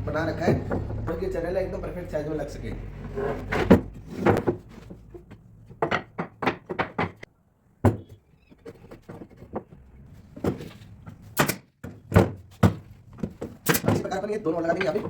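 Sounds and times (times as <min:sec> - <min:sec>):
wooden boards knocking and thudding: 0:03.5 - 0:14.2.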